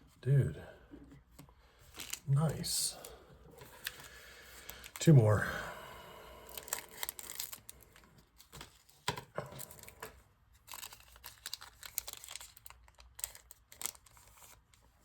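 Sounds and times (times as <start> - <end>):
wrapper tearing and crinkling: 1.9 - 2.3, 6.5 - 8.9, 9.5 - 14.8.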